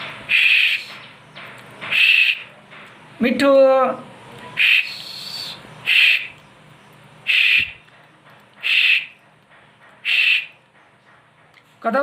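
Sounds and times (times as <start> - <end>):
parrot calling loudly: 0.3 - 1.0, 1.9 - 2.5, 4.6 - 6.4, 7.2 - 7.8, 8.6 - 9.2, 10.0 - 10.6.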